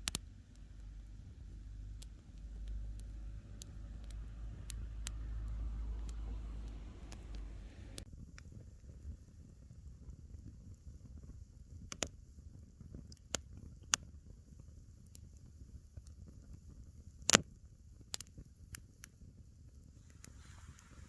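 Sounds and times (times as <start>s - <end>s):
low steady rumble: 0.0s - 11.4s, 19.7s - 21.0s
wood fire crackling and popping: 0.0s - 21.0s.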